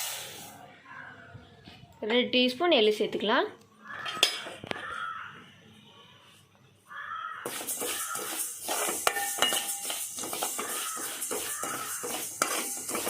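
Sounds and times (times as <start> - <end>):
seeds roasting in a pan: 0.0 - 0.6, 7.4 - 13.0
spoon scraping and clinking on pan: 7.4 - 13.0.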